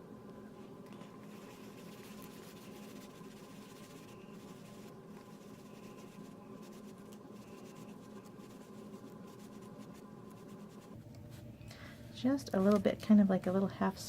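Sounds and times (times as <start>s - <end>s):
steady low hum: 0.0s - 14.0s
sponge brushing on cardstock: 1.0s - 11.5s.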